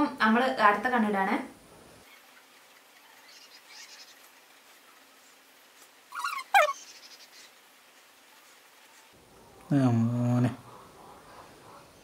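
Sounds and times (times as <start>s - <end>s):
bird squawk falling in pitch: 6.1s - 6.8s.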